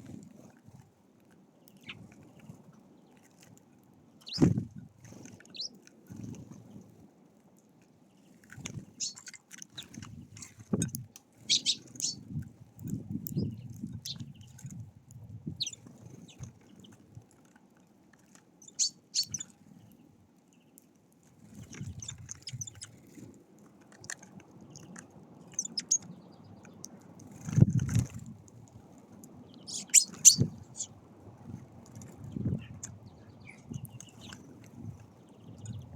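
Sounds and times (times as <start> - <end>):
small birds chirping: 1.6 - 3.3, 4.2 - 5.8, 8.1 - 14.8, 15.4 - 17.0, 18.6 - 20.8, 21.5 - 23.2, 24.0 - 27.7, 29.3 - 31.0, 32.0 - 35.9.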